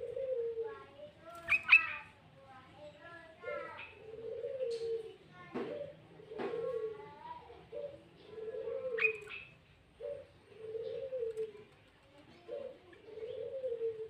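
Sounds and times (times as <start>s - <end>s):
dove cooing: 0.0s - 2.2s, 2.8s - 14.0s
high bird chirp: 1.4s - 2.0s, 9.0s - 9.6s.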